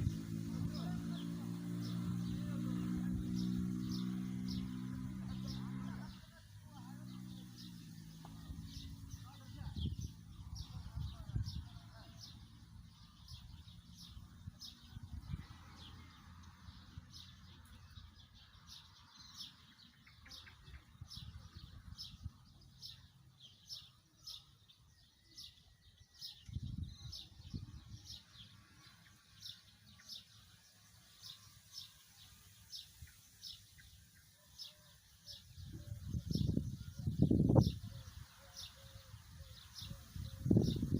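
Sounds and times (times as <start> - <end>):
wind rumble on microphone: 0.0 - 6.3, 7.3 - 16.1, 20.6 - 22.8, 26.3 - 28.4, 35.4 - 40.9
small bird chirping: 0.0 - 40.9.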